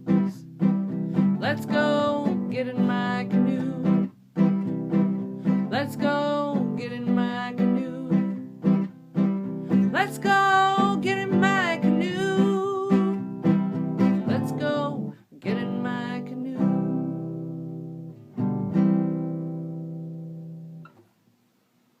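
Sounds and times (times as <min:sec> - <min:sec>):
acoustic guitar strumming: 0:00.0 - 0:21.1
person singing: 0:01.2 - 0:04.1, 0:05.5 - 0:08.5, 0:09.7 - 0:13.3, 0:14.0 - 0:17.4.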